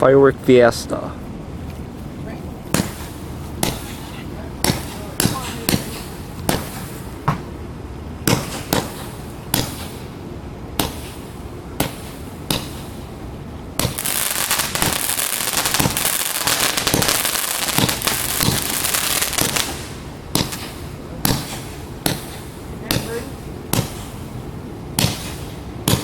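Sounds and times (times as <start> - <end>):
dense firework crackling: 2.7 - 7.2, 8.3 - 10.2, 10.8 - 13.2, 13.8 - 26.0
firework shots lifting off: 13.8 - 24.3, 25.0 - 26.0.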